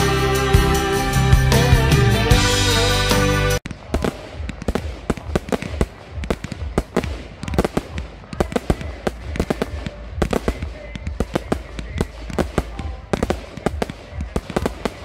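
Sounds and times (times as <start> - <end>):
fireworks banging: 3.6 - 15.0.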